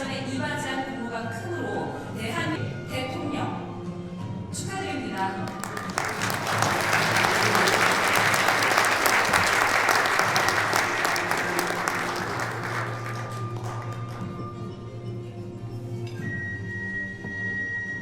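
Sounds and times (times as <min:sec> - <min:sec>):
background music: 0:00.0 - 0:18.0
audience applauding: 0:05.4 - 0:14.3.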